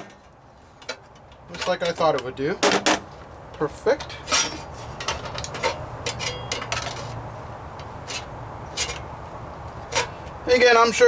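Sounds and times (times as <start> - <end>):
sheet metal and hand tools clinking: 4.0 - 7.2.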